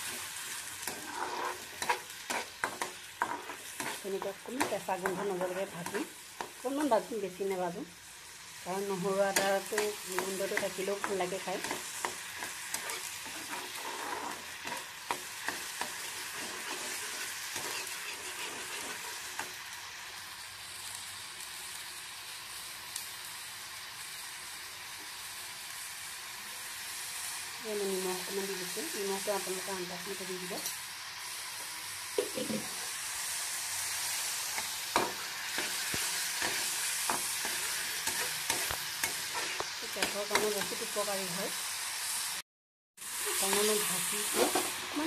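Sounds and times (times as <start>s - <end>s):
paste sizzling in hot oil: 0.0s - 42.4s, 43.0s - 45.0s
metal spatula scraping a pan: 0.8s - 6.0s, 9.3s - 19.5s, 34.5s - 40.8s.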